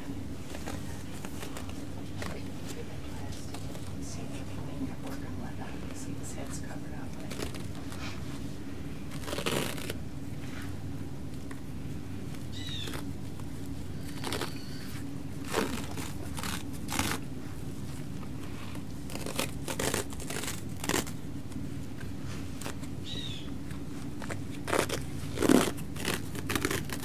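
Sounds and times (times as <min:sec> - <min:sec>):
low room hum: 0:00.0 - 0:27.0
dressing materials crinkling and tearing: 0:00.5 - 0:03.9, 0:06.4 - 0:08.2, 0:09.0 - 0:10.0, 0:12.2 - 0:27.0.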